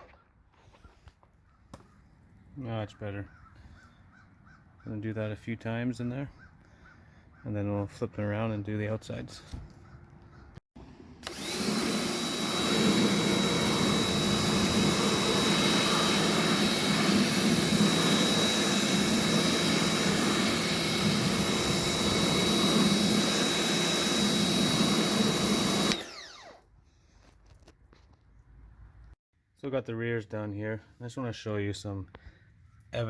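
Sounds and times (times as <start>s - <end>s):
machine motor whining and hissing: 11.2s - 26.6s.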